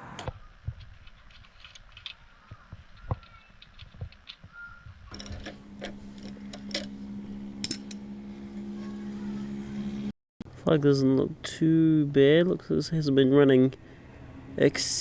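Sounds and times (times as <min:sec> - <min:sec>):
steady low hum: 0:05.1 - 0:10.6.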